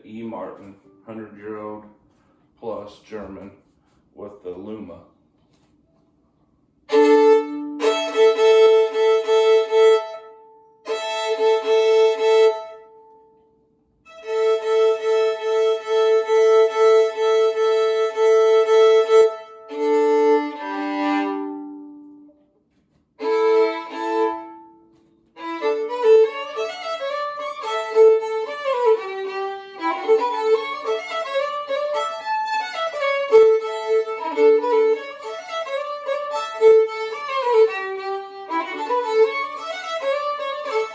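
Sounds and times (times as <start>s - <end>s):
solo fiddle bowed: 6.9s - 13.4s, 14.1s - 22.3s, 23.2s - 40.9s.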